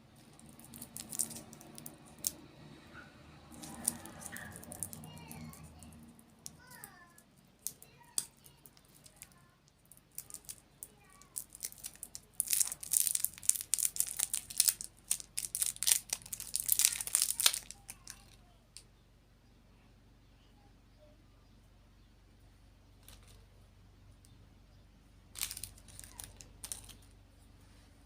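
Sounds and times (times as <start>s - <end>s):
plastic wrapper crinkling: 0.2s - 2.4s, 3.5s - 6.6s, 7.6s - 18.4s, 25.4s - 27.0s.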